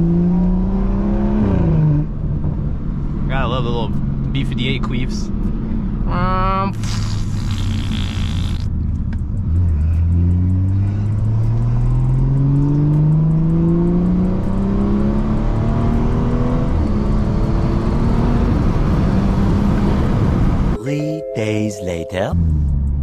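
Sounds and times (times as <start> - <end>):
car engine accelerating: 0.0 - 20.8
short hiss: 6.8 - 8.7.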